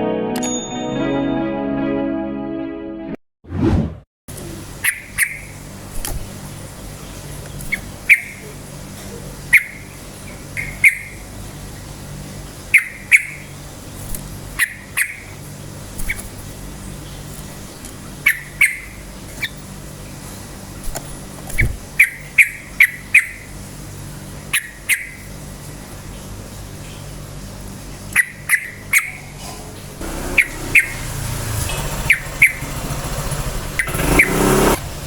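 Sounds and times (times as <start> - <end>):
brief whoosh: 3.5 - 4.0
bird giving sharp calls: 4.8 - 5.6, 7.7 - 8.5, 9.5 - 11.3, 12.7 - 13.5, 14.6 - 15.4, 18.2 - 19.6, 22.0 - 23.5, 24.5 - 25.3, 28.2 - 29.4, 30.0 - 31.3, 32.0 - 33.0, 33.8 - 34.8.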